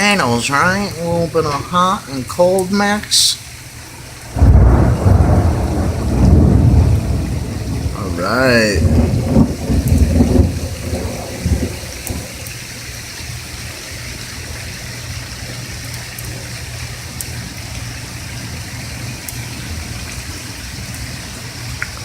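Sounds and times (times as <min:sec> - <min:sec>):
sharp drips: 0:00.0 - 0:22.0
steady rain falling: 0:00.0 - 0:22.0
thunder rumbling: 0:03.8 - 0:12.7.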